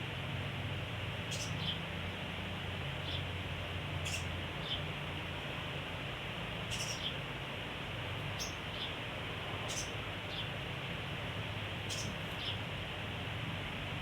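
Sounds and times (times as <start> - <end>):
songbird squeaky chirps: 6.7 - 7.2.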